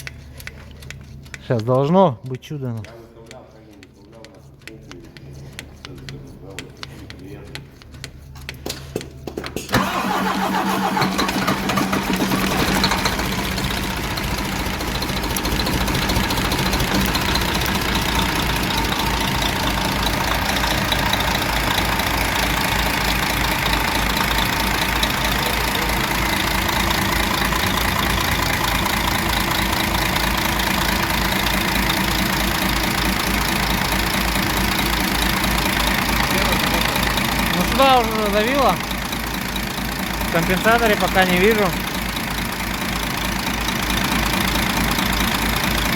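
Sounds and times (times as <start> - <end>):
diesel truck engine idling: 9.7 - 45.9
engine knocking: 9.7 - 45.9.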